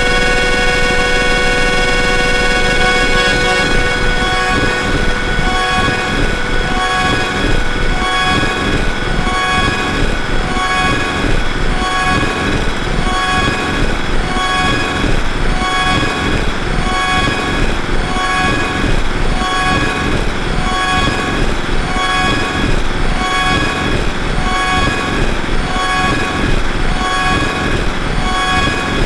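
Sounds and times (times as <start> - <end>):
pulsing high tones: 0.0 - 14.9
electronic noise drone music: 0.0 - 22.6.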